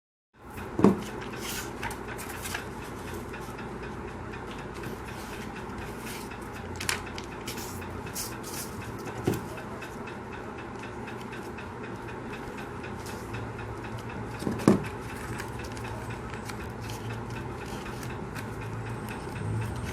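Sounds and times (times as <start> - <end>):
steady background hum: 0.4 - 19.9
paper rustling and crackling: 4.8 - 9.5, 14.3 - 19.9.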